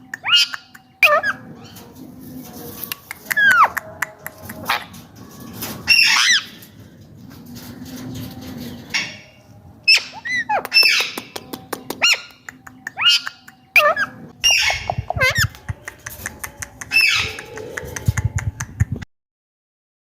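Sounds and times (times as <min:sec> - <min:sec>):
parakeet squawks and chirps: 0:00.2 - 0:01.4, 0:05.8 - 0:06.6, 0:09.9 - 0:11.2, 0:13.0 - 0:15.6, 0:16.9 - 0:17.5
sharp clicks: 0:15.0 - 0:18.8.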